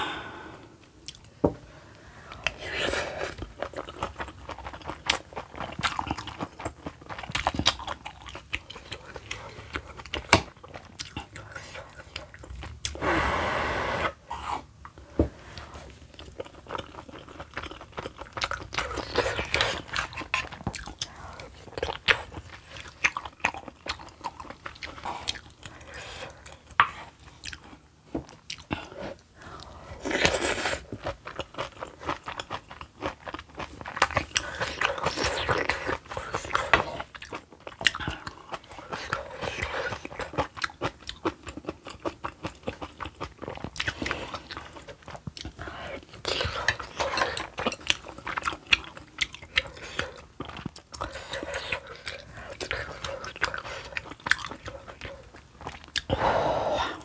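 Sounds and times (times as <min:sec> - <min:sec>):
person chewing and biting: 0:29.6 - 0:56.1.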